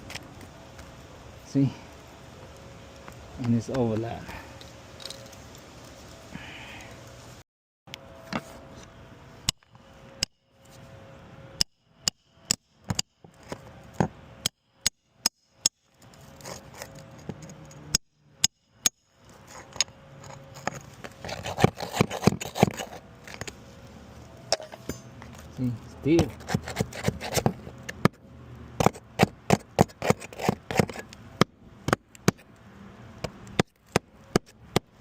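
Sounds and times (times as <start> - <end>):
scraping and rustling: 16.0 - 17.8, 19.2 - 27.9.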